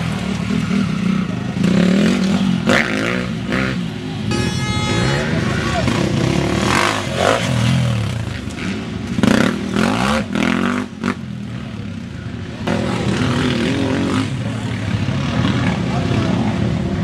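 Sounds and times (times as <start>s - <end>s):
dirt bike engine revving: 0.0s - 11.2s.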